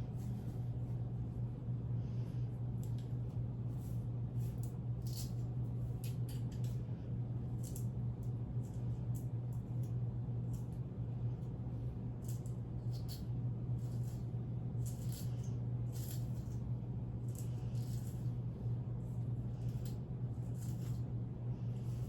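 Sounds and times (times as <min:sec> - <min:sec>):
steady low hum: 0:00.0 - 0:22.0
rustling and scraping: 0:17.3 - 0:18.4, 0:19.6 - 0:22.0.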